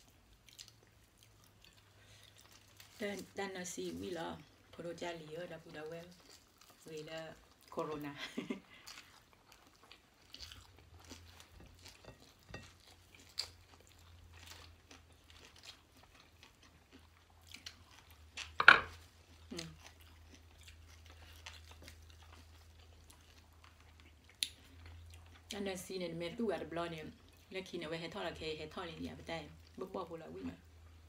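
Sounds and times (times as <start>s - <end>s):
chewing and crunching food: 0.0s - 31.0s
wet eating clicks and smacks: 23.4s - 25.3s.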